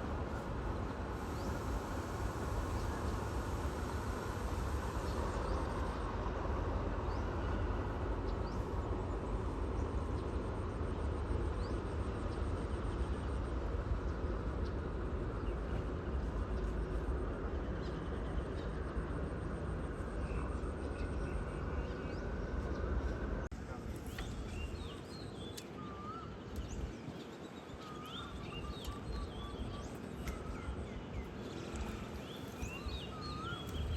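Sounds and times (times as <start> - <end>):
diesel train rumbling: 0.0 - 33.9.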